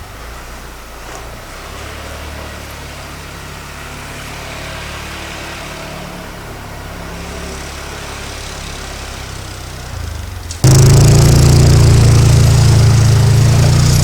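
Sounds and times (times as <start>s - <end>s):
atv engine running: 7.0s - 14.0s.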